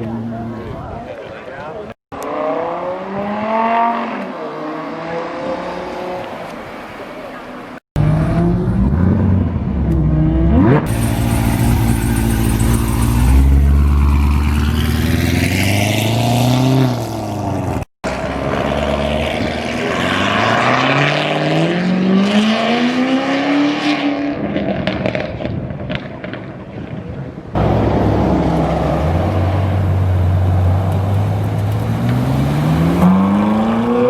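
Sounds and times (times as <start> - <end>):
car engine accelerating: 8.0 - 25.2, 27.6 - 34.0.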